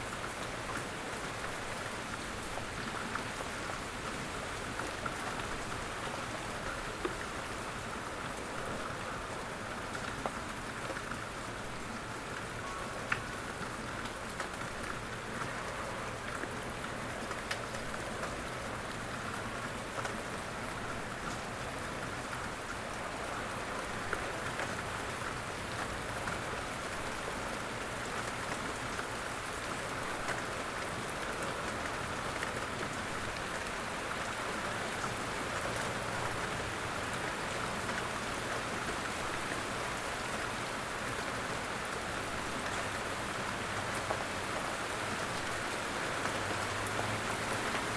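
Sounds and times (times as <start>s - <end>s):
steady rain falling: 0.0s - 47.9s
raindrop ticks: 12.3s - 20.2s.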